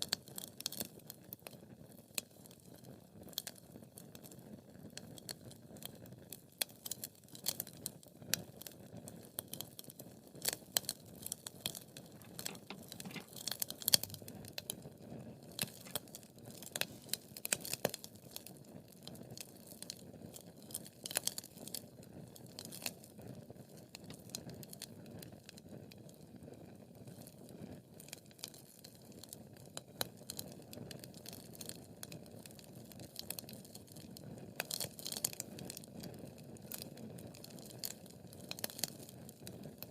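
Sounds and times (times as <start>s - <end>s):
wood fire crackling: 8.4s - 27.3s, 28.0s - 39.9s.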